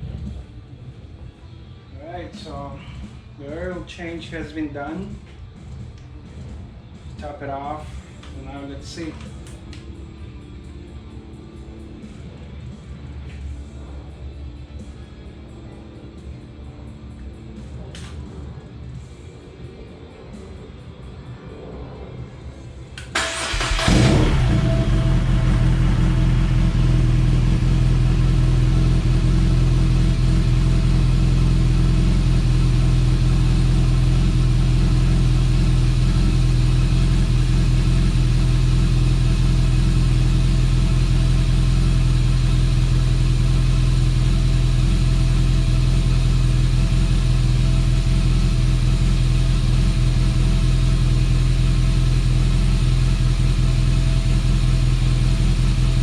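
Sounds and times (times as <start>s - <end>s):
motorcycle engine starting and idling: 23.0s - 56.0s.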